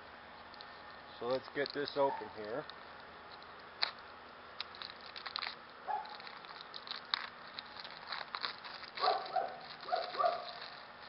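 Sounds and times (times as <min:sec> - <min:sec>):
plastic wrapping crinkling: 0:04.6 - 0:11.0.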